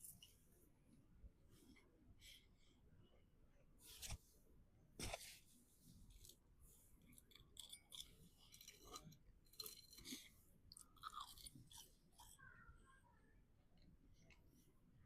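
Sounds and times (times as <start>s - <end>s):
chewing food: 7.0s - 12.6s.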